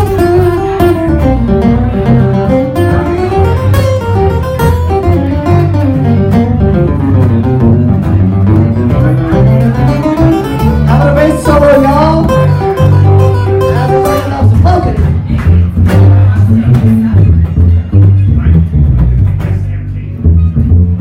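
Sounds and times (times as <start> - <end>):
lead string instrument melody: 0.0 - 18.1
acoustic guitar: 0.0 - 21.0
low bass line: 0.0 - 21.0.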